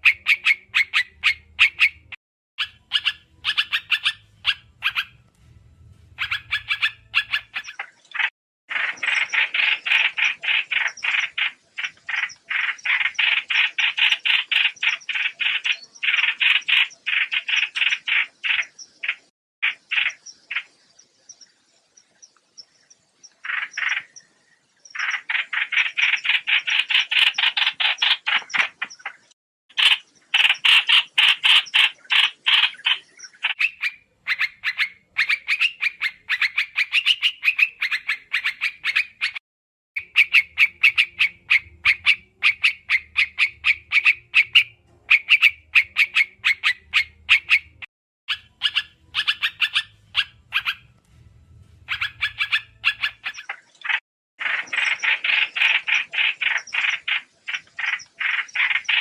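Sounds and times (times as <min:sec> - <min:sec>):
bird chattering calls: 0:00.0 - 0:05.2, 0:06.2 - 0:20.8, 0:23.3 - 0:24.3, 0:24.9 - 0:39.4, 0:40.0 - 0:50.9, 0:51.8 - 0:59.0
faint low hum: 0:04.2 - 0:07.4, 0:48.9 - 0:53.1.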